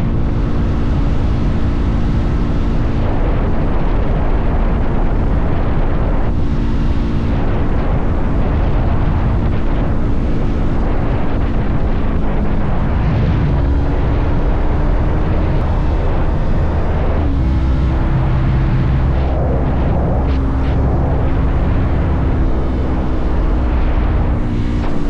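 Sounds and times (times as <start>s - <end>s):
motorcycle engine running: 0.0s - 25.0s
wind rumble: 0.0s - 25.0s.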